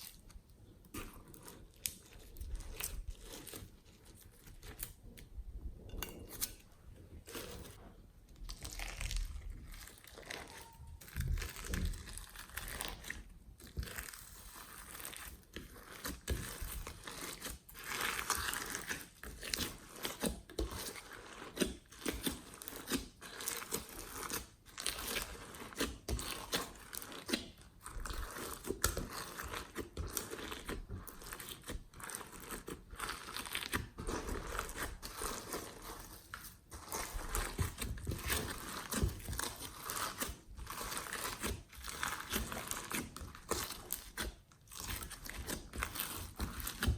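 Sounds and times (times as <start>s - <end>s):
slime crackling and popping: 8.4s - 20.3s.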